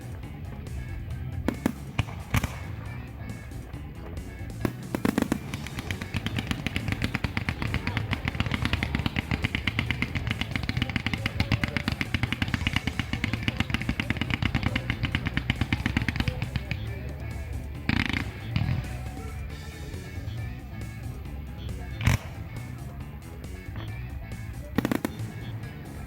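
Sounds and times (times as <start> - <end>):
background music: 0.0 - 26.0
fireworks crackling pops: 1.5 - 3.0, 4.6 - 16.8, 24.8 - 26.0
firework burst: 4.6 - 16.8, 24.8 - 25.7.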